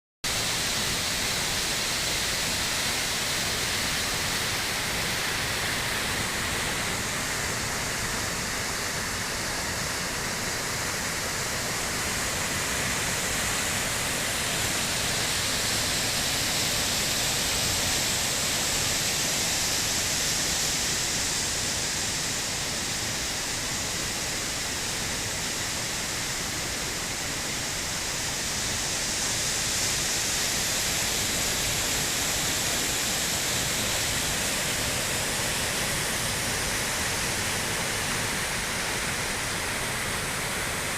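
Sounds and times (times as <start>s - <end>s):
waterfall rushing: 0.3s - 40.9s.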